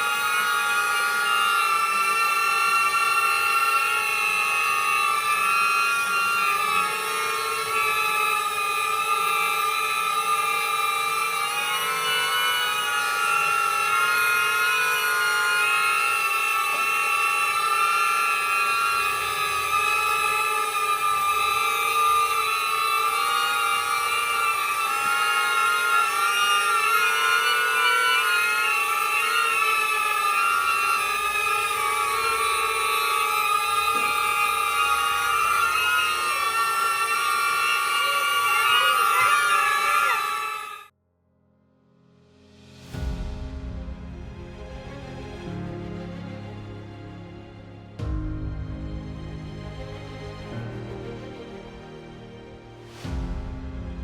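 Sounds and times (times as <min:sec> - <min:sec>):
drone propellers high whine: 0:00.0 - 0:40.9.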